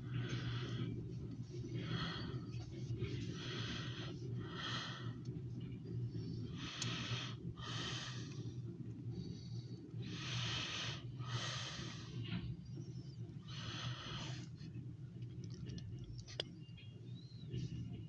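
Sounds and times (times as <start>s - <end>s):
person breathing: 0.0s - 5.3s, 6.5s - 12.4s, 13.4s - 14.7s
steady low hum: 0.0s - 18.0s.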